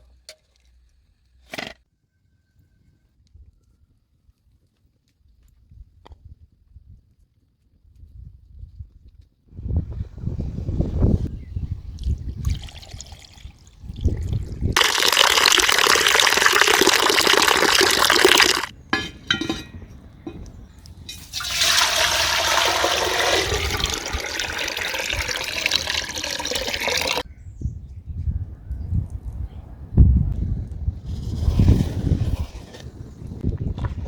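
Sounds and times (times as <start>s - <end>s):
running water: 12.5s - 18.7s, 21.3s - 27.2s.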